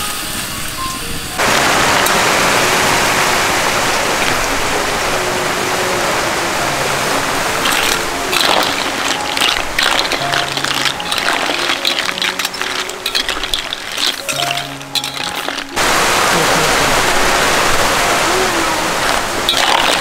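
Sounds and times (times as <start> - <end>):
snails and onion sizzling in wok: 0.0 - 6.1, 6.8 - 16.3, 18.3 - 20.0
shells clattering against wok: 7.6 - 15.7.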